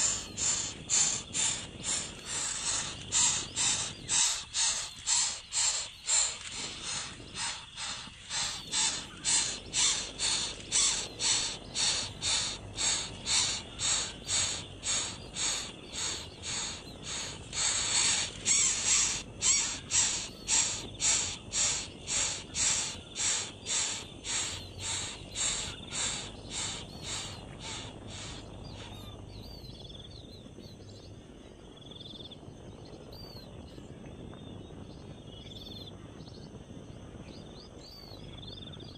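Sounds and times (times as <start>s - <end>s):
bird harsh repeated calls: 0.0s - 29.7s.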